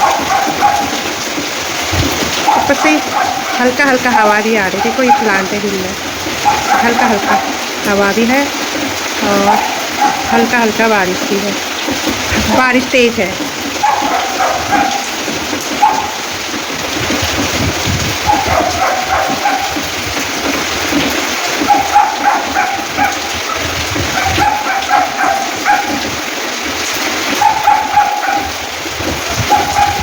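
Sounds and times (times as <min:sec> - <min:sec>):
heavy rain falling: 0:00.0 - 0:30.0
animal crying out: 0:18.1 - 0:20.1, 0:21.4 - 0:26.3.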